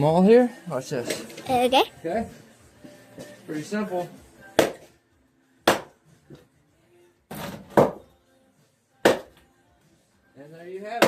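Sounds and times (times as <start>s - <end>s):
maul chopping wood: 4.6s - 4.8s, 5.6s - 5.9s, 9.0s - 9.4s.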